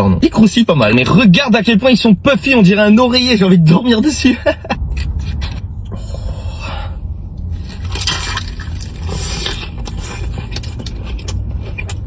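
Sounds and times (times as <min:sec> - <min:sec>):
low rumble: 0:00.6 - 0:12.0
crunching crispy fried chicken: 0:07.5 - 0:12.0.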